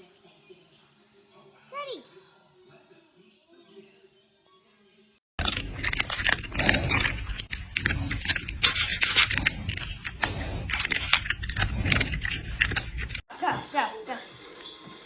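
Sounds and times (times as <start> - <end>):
loud crunching and crackling: 5.4 - 15.0.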